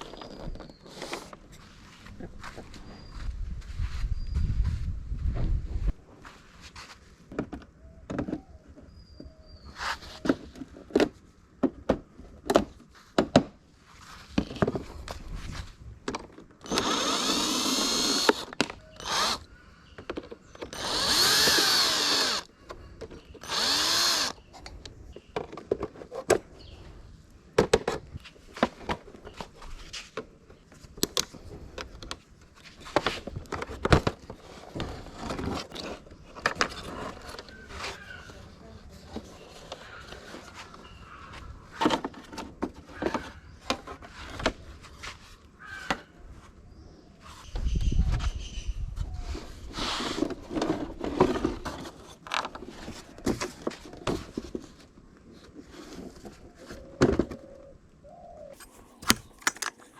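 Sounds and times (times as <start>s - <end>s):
power drill running: 16.6s - 19.5s, 20.7s - 22.5s, 23.4s - 24.4s, 58.6s - 59.9s
tools and parts knocking and clicking: 58.6s - 59.9s.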